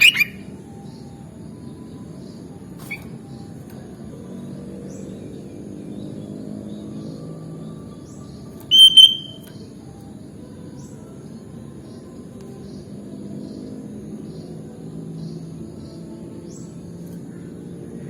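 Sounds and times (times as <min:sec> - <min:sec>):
low background hum: 0:00.0 - 0:18.0
bird two-note call: 0:08.7 - 0:09.5.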